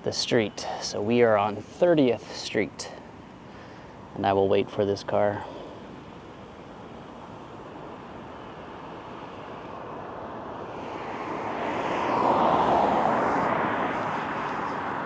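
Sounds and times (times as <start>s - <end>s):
car passing close: 9.0s - 15.0s.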